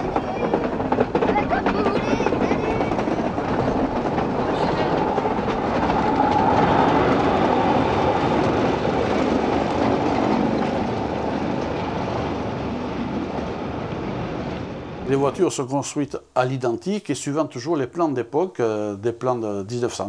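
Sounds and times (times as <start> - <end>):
electric train running past: 0.0 - 15.4.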